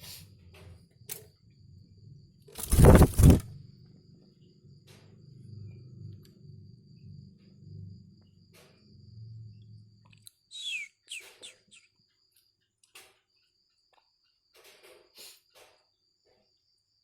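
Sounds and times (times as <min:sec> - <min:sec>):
bird calls: 0:10.5 - 0:12.0.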